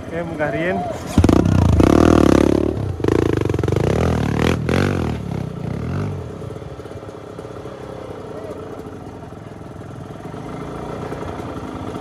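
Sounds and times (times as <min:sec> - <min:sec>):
dirt bike engine revving: 0:00.0 - 0:09.1.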